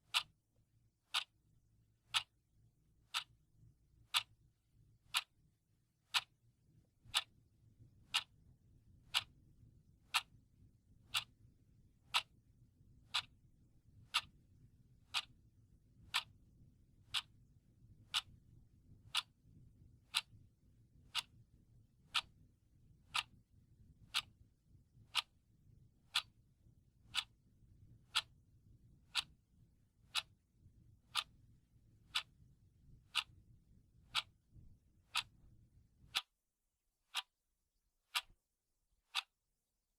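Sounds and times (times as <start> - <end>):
clock ticking: 0.0 - 0.3, 1.1 - 1.3, 2.1 - 2.3, 3.1 - 3.4, 4.1 - 4.4, 5.1 - 5.3, 6.1 - 6.3, 7.0 - 7.3, 8.1 - 8.3, 9.1 - 9.3, 10.1 - 10.3, 11.1 - 11.3, 12.1 - 12.4, 13.1 - 13.3, 14.0 - 14.4, 15.1 - 15.3, 16.1 - 16.3, 17.1 - 17.3, 18.1 - 18.4, 19.1 - 19.3, 20.1 - 20.4, 21.1 - 21.4, 22.1 - 22.3, 23.1 - 23.4, 24.1 - 24.3, 25.1 - 25.3, 26.1 - 26.4, 27.1 - 27.4, 28.1 - 28.4, 29.1 - 29.4, 30.0 - 30.4, 31.1 - 31.4, 32.0 - 32.4, 33.0 - 33.4, 34.1 - 34.4, 35.1 - 35.4, 36.1 - 36.3, 37.1 - 37.3, 38.1 - 38.3, 39.1 - 39.3.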